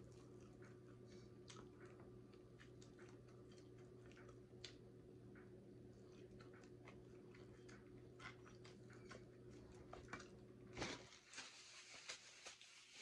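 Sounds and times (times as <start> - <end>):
person chewing: 0.0 - 5.0, 5.7 - 10.4.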